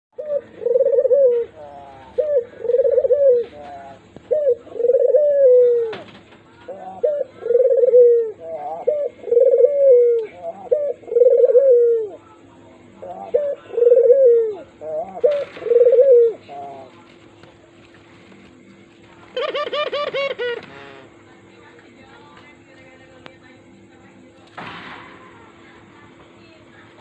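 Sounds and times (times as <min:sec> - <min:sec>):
dove cooing: 0:00.1 - 0:17.3, 0:19.2 - 0:21.2.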